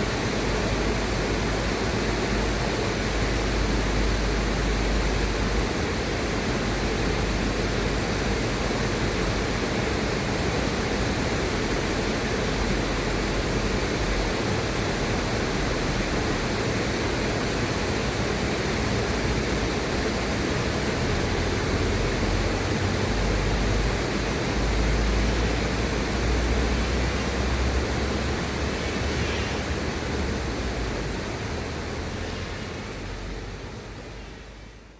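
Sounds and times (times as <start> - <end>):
river water rushing: 0.0 - 34.7.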